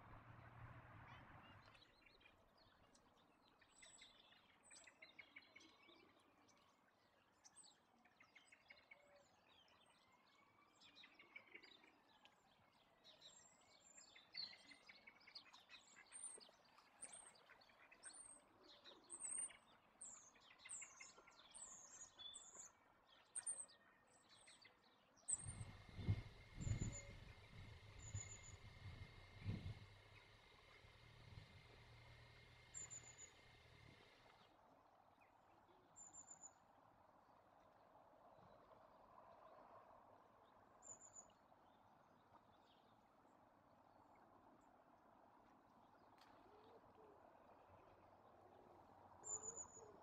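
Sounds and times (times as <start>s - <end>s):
faint songbirds chirping: 0.0s - 50.0s.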